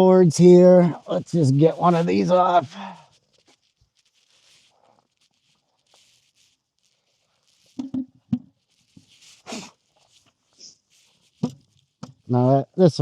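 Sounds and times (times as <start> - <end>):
wooden knocks: 7.8 - 8.5, 11.4 - 12.2.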